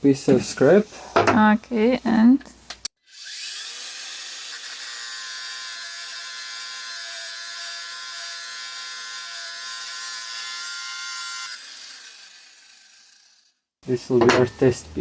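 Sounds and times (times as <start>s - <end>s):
power tool motor whirring: 3.0s - 13.5s.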